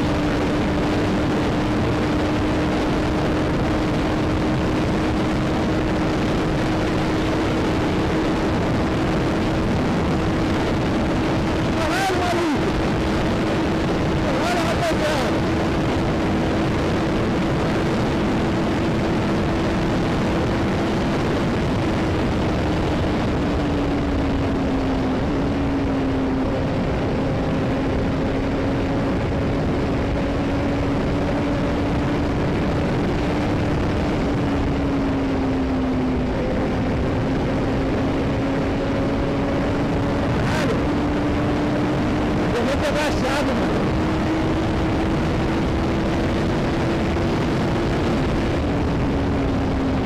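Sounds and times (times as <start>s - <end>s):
motorcycle engine cruising: 0.0s - 50.0s
wind noise on microphone: 0.0s - 50.0s.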